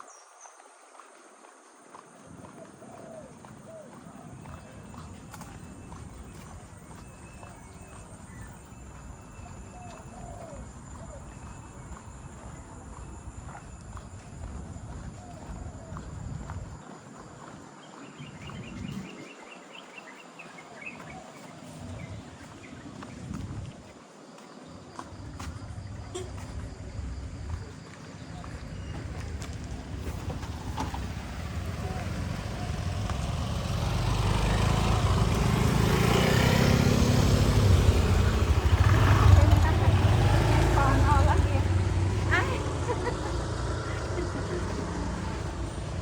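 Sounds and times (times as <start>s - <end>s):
outdoor background noise: 0.0s - 46.0s
motor scooter engine: 25.7s - 46.0s.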